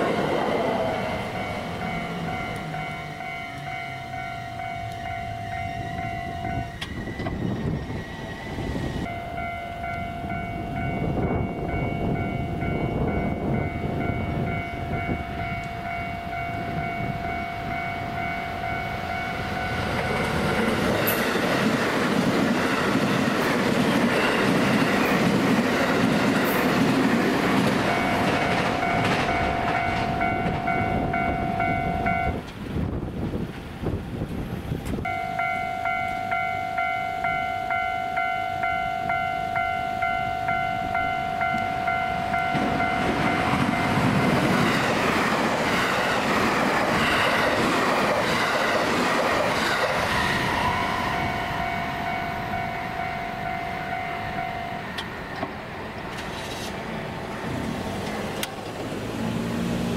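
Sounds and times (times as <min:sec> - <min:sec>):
warning bell ringing: 0:00.0 - 0:06.9, 0:09.0 - 0:21.6, 0:27.7 - 0:32.4, 0:35.1 - 0:44.8, 0:50.4 - 0:55.3
electric train passing at speed: 0:00.0 - 0:59.9.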